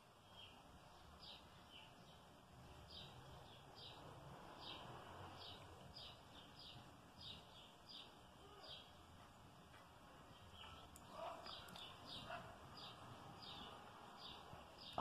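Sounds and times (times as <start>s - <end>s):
faint bird chirps: 0.1s - 15.0s.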